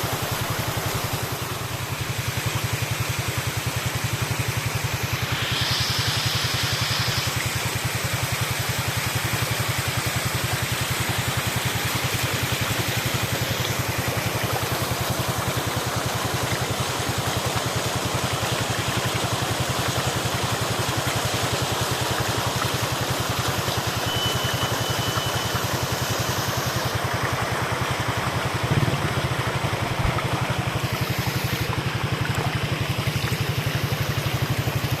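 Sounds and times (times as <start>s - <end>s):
waterfall rushing: 0.0s - 8.6s, 22.4s - 35.0s.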